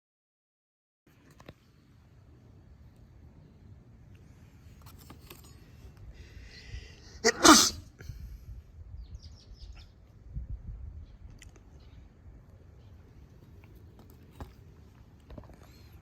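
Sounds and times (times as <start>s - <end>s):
person sneezing loudly: 7.2s - 7.9s.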